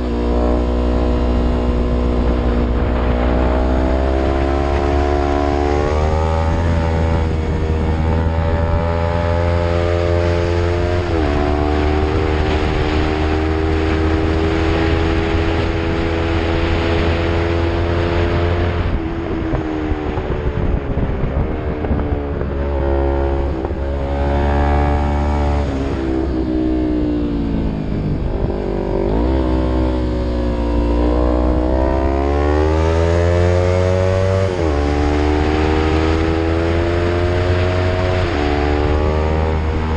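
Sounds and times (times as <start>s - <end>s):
steady low rumble: 0.0s - 8.9s, 18.6s - 32.0s
motorcycle engine revving: 0.0s - 39.9s.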